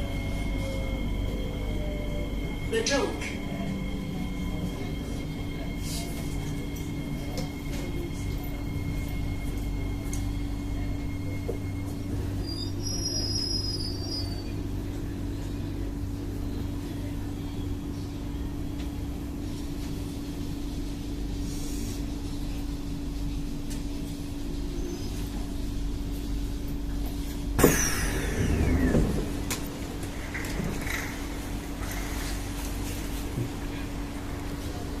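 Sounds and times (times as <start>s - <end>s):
low train rumble: 0.0s - 35.0s
train electrical hum: 0.0s - 35.0s
sharp thump: 27.6s - 28.3s.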